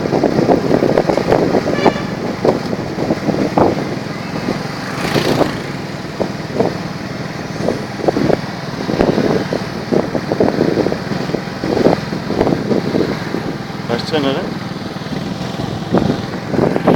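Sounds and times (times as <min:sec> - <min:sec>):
road and air noise: 0:00.0 - 0:16.9
small motorbike engine running: 0:04.5 - 0:06.0.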